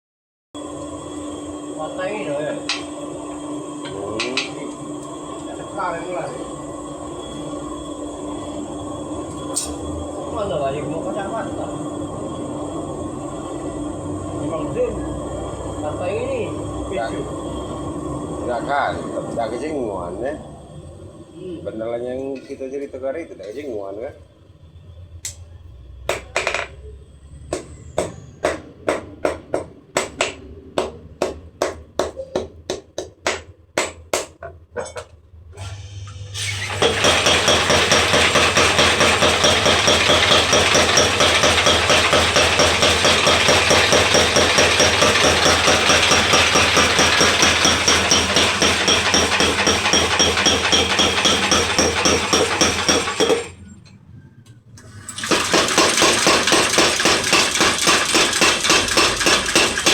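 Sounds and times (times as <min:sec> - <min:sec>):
rapid machine hammer impacts: 0:36.7 - 0:53.6, 0:55.2 - 0:59.9
hammer ringing on anvil: 0:39.2 - 0:53.5.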